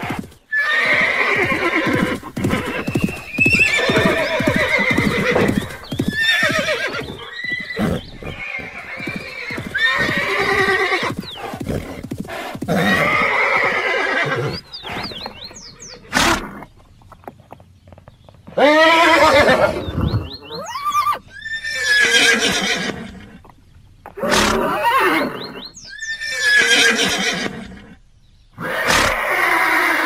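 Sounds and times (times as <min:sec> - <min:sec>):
horses neighing: 0:00.0 - 0:16.8, 0:18.5 - 0:28.0, 0:28.6 - 0:30.0
hooves clopping: 0:00.0 - 0:20.9.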